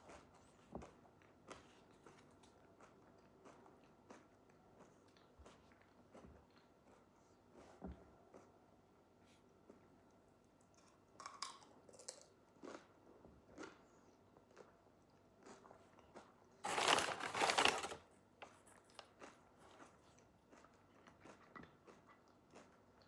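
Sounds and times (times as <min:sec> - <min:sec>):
soft chewing: 0:00.0 - 0:23.0
loud crunch: 0:16.6 - 0:18.0
food clicks and crackles: 0:16.6 - 0:19.2.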